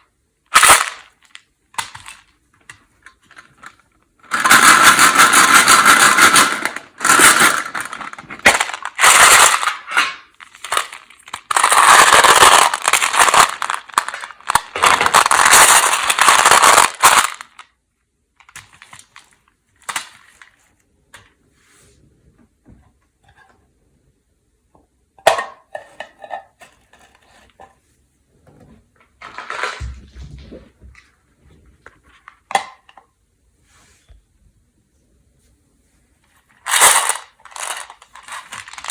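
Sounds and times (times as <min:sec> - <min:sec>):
candy packet crinkling and rattling: 0:00.5 - 0:02.3, 0:03.0 - 0:17.7, 0:18.4 - 0:20.6, 0:36.4 - 0:38.9
candies clicking and tapping: 0:00.6 - 0:17.7.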